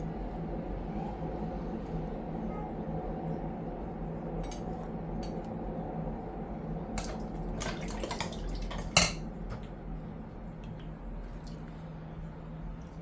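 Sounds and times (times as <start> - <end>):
pots and utensils clattering: 7.0 - 9.6.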